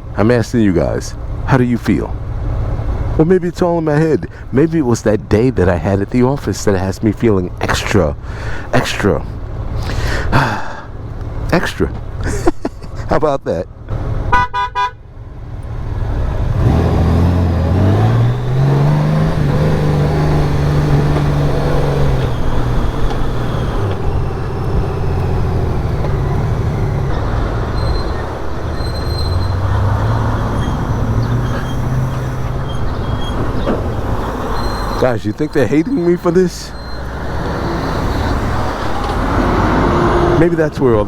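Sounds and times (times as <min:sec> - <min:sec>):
wind and road noise: 0:00.0 - 0:41.0
motorcycle engine accelerating: 0:15.4 - 0:40.4.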